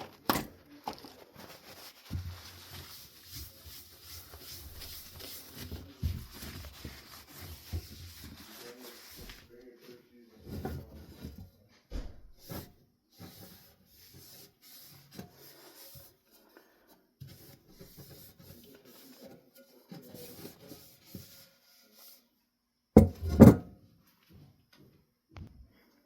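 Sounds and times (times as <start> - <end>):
paper towel wiping fan housing: 1.4 - 11.4, 12.4 - 16.2, 17.3 - 22.2.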